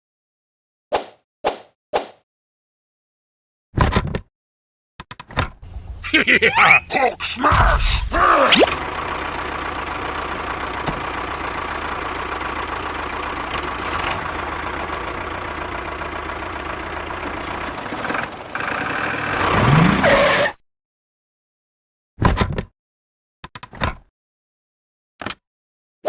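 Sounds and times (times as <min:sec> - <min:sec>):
small engine running: 0:08.2 - 0:20.0.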